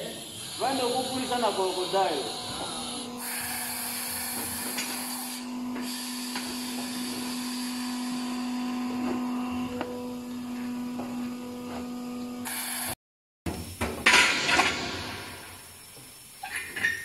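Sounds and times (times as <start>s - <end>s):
electric motor humming: 0.0s - 12.5s.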